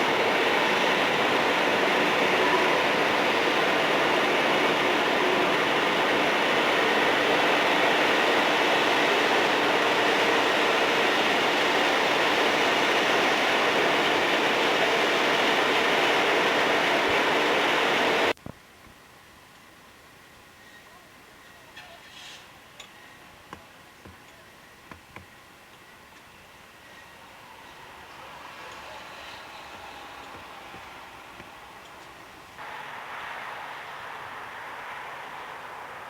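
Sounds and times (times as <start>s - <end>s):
train rumbling past on rails: 0.0s - 18.3s, 26.6s - 36.0s.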